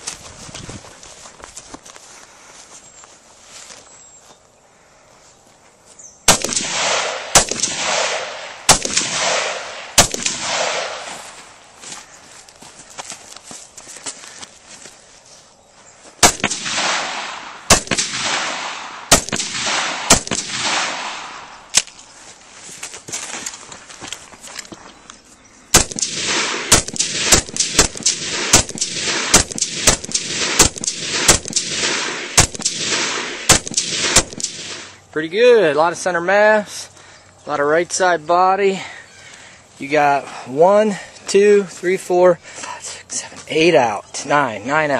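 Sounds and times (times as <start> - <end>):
rifle shots with long echo: 6.3 - 11.6, 16.2 - 21.8, 25.7 - 35.0.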